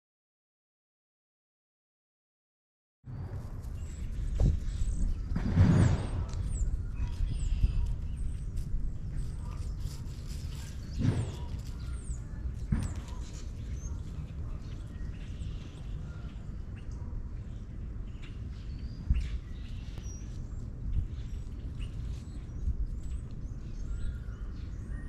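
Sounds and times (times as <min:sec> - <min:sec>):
small birds chirping: 0:03.1 - 0:25.0
steady low rumble: 0:03.1 - 0:25.0.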